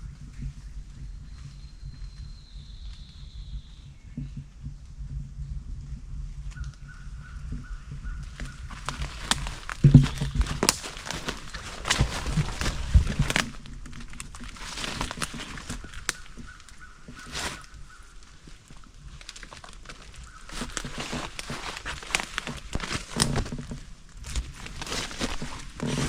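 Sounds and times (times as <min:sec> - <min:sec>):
dog paws scrabbling on dead wood: 0:07.6 - 0:26.0.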